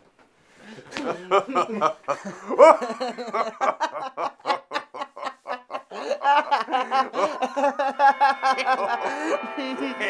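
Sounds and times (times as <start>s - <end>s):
staccato laughter: 1.0s - 9.7s
music: 8.0s - 10.0s.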